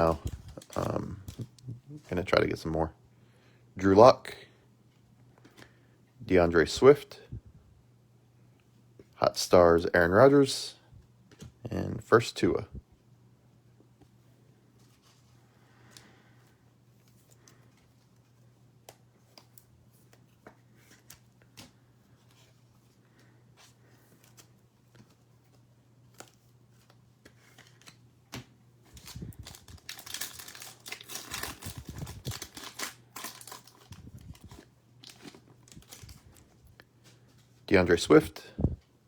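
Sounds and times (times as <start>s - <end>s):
card pack wrapper tearing: 0.0s - 1.8s, 28.9s - 36.4s.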